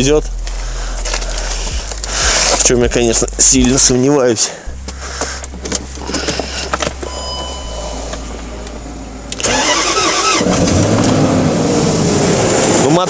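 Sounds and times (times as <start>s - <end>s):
low hum: 0.0s - 12.9s
engine cranking and starting: 4.8s - 8.3s, 9.3s - 13.0s.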